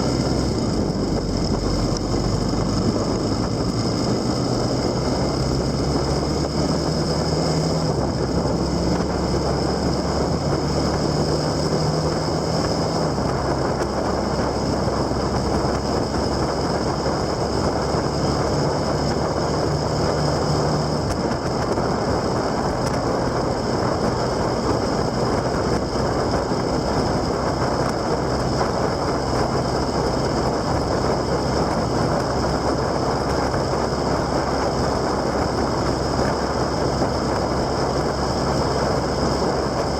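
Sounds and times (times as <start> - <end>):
motorcycle engine drone: 0.0 - 39.9
wind rush on microphone: 0.0 - 39.9.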